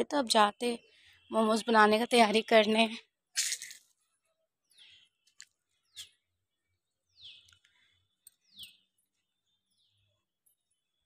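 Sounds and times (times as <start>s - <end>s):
small bird chirping: 3.4s - 11.0s.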